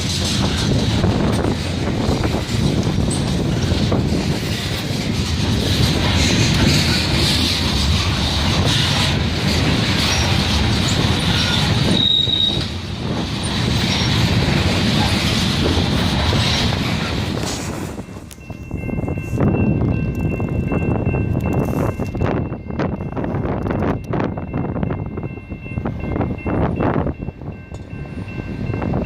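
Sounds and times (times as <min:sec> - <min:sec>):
train wheels rumbling on rail: 0:00.0 - 0:29.0
high wheel squeal: 0:09.9 - 0:12.8, 0:13.6 - 0:14.3.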